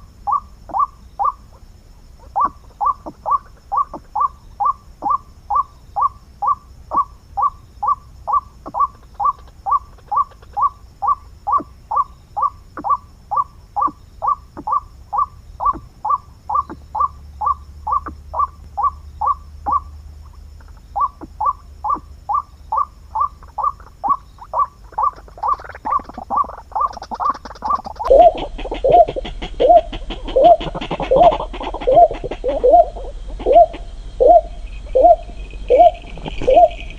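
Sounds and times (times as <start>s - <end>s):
bird calling short repeated notes: 20.6s - 36.9s.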